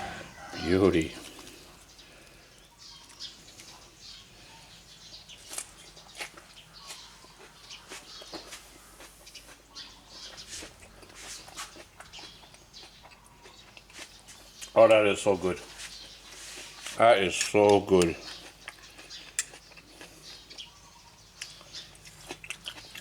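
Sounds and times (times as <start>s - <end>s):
chewing and mouth sounds: 5.4s - 14.8s, 16.0s - 23.0s.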